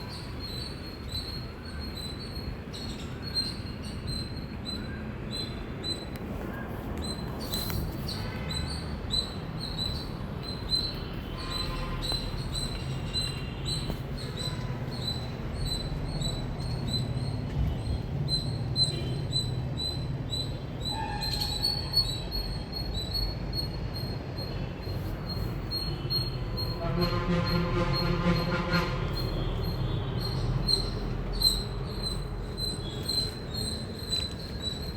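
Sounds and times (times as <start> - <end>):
squirrel chirping: 7.0 - 26.8, 29.2 - 34.9.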